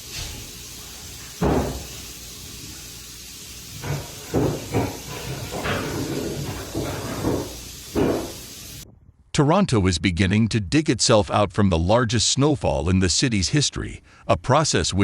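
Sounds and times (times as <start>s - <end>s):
steady hiss: 0.0s - 8.8s.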